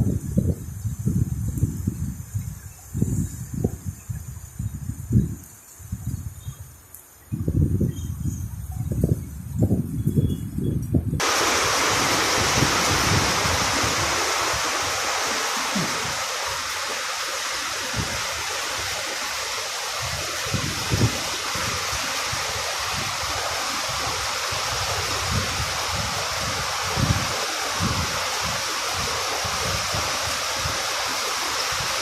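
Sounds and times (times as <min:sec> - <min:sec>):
light rain falling: 0:11.2 - 0:32.0.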